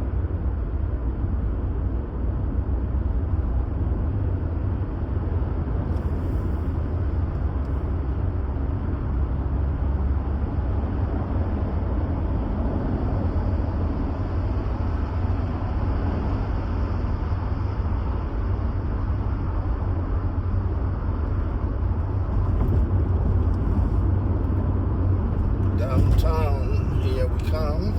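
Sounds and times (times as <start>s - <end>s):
car engine and road rumble: 0.0s - 27.9s.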